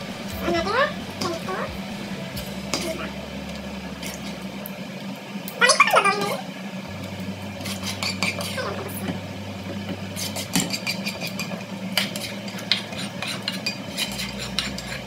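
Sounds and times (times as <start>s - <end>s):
spatula scraping pot: 7.6s - 15.0s.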